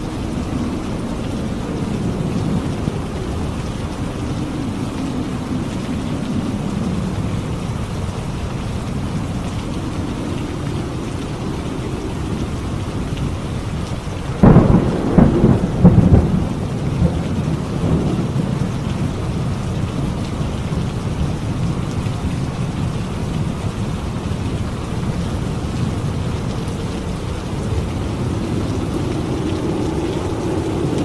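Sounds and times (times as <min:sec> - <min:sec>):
heavy rain: 0:00.0 - 0:31.0
close thunderclap: 0:14.3 - 0:19.2.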